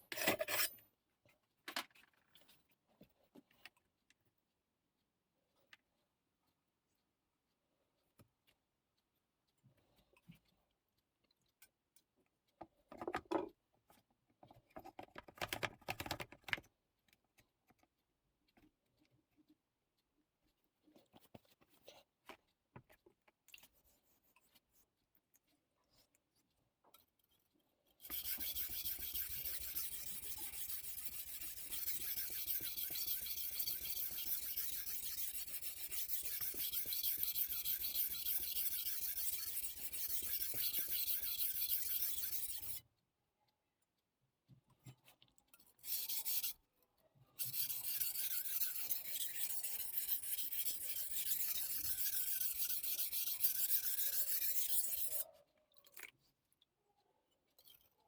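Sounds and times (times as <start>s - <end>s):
knife scraping on whetstone: 0.0s - 0.8s, 28.0s - 42.8s, 45.9s - 46.6s, 47.4s - 55.2s.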